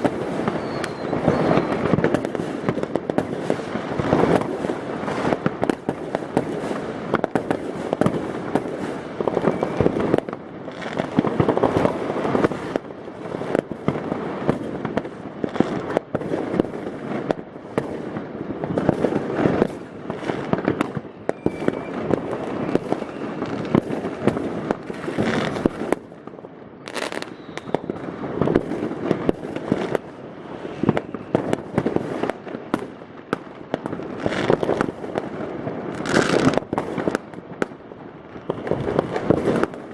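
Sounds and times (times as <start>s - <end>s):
firecracker crackle: 0.0s - 39.9s.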